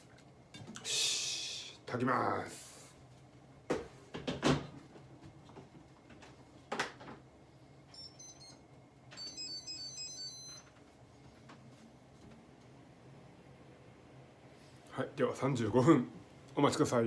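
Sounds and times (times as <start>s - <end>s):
short beeps: 9.2s - 10.7s.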